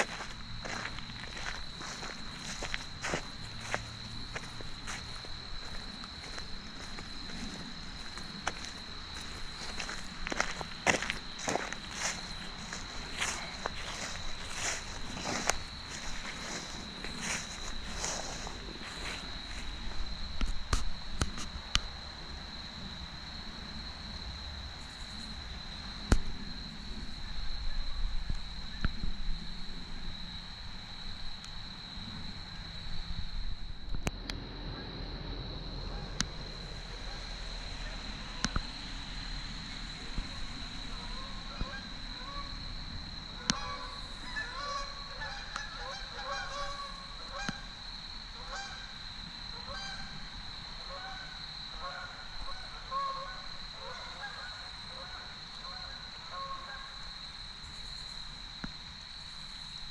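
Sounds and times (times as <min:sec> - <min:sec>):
crickets trilling: 0:00.0 - 0:59.9
geese honking: 0:41.0 - 0:42.6, 0:43.4 - 0:47.7, 0:48.4 - 0:48.9, 0:49.6 - 0:50.1, 0:50.9 - 0:56.9.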